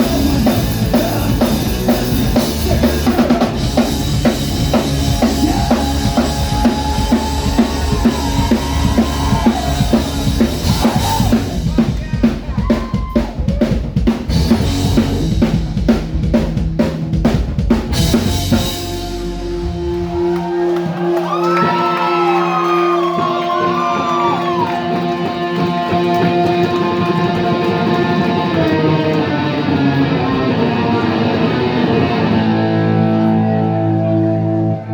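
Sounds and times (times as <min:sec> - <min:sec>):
drum kit playing: 0:00.0 - 0:33.4
electric guitar bends: 0:24.8 - 0:34.9.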